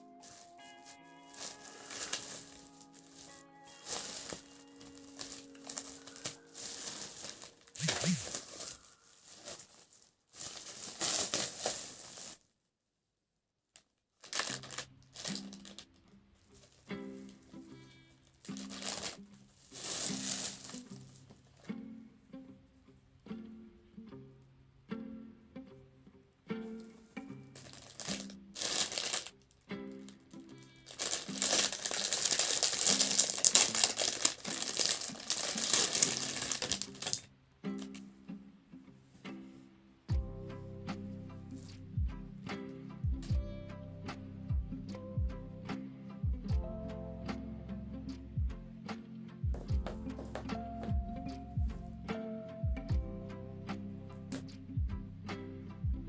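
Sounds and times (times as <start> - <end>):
soft background music: 0.0 - 12.4, 14.3 - 56.0
rustling and crinkling: 0.0 - 12.6, 13.7 - 22.2, 26.5 - 38.2, 49.5 - 51.8.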